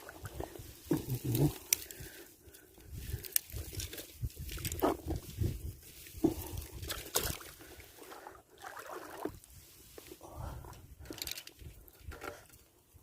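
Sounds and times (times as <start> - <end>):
water sloshing and splashing: 3.8 - 10.0.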